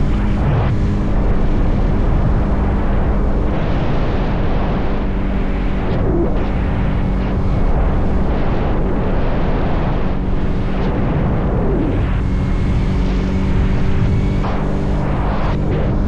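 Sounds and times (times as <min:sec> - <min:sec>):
motorcycle engine cruising: 0:00.0 - 0:08.3, 0:11.9 - 0:16.0
wind noise: 0:00.0 - 0:16.0.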